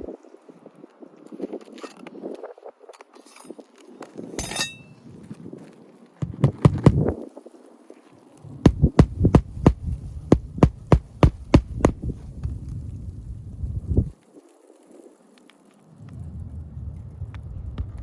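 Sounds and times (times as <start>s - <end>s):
hammer blows on shingle roof: 6.2s - 7.1s, 8.7s - 12.2s.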